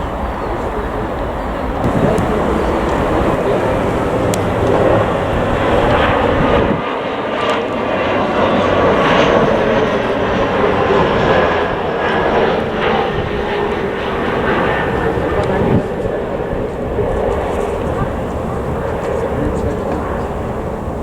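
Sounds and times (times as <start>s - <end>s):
faint high whine: 0.0s - 6.6s
jet engines rushing: 0.0s - 21.0s.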